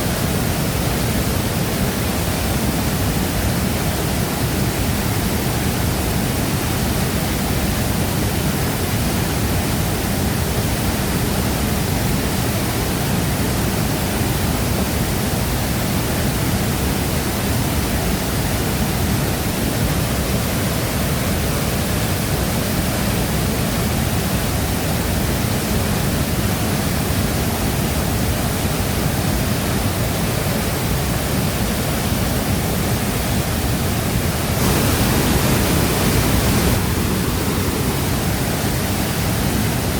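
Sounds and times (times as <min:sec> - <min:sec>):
waterfall crashing: 0:00.0 - 0:39.9.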